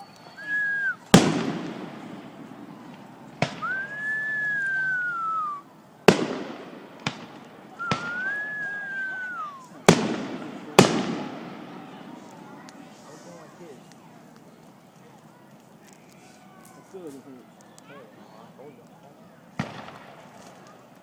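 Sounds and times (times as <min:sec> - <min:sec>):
whistling firework shells: 0:00.0 - 0:02.0, 0:02.8 - 0:10.2
fireworks bangs: 0:00.9 - 0:13.1, 0:19.5 - 0:20.6.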